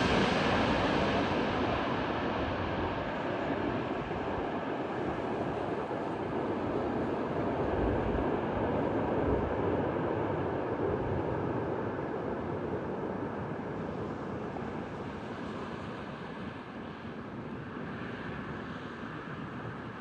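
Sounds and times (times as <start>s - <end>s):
jet landing rush: 0.0s - 10.5s.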